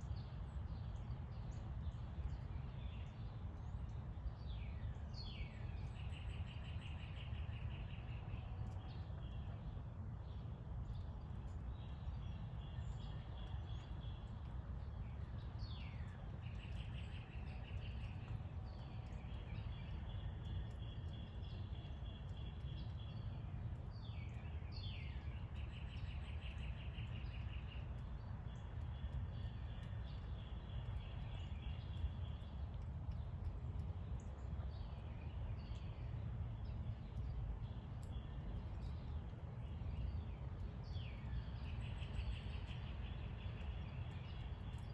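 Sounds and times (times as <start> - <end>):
low outdoor rumble: 0.0 - 44.9.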